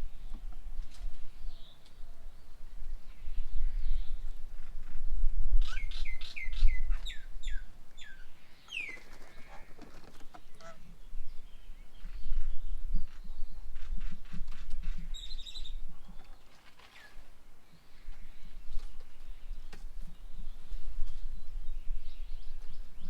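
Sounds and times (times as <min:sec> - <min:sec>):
birds chirping: 0:05.7 - 0:14.0.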